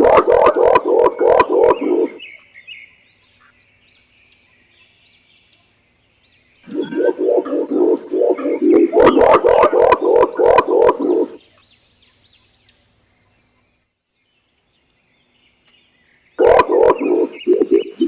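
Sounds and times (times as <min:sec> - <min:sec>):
pigeon hooting: 0:00.0 - 0:02.2, 0:06.7 - 0:11.4, 0:16.4 - 0:18.0
small birds chirping faintly: 0:00.0 - 0:18.0.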